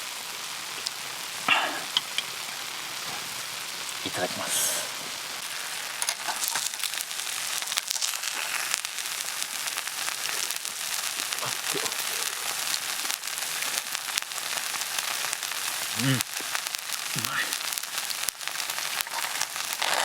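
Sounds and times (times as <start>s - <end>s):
food sizzling on a griddle: 0.0s - 20.0s.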